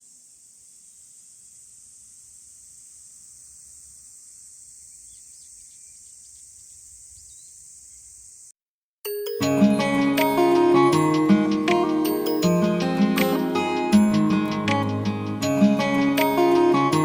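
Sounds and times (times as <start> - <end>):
faint insect drone: 0.0 - 8.6
bird chirps: 4.6 - 8.5.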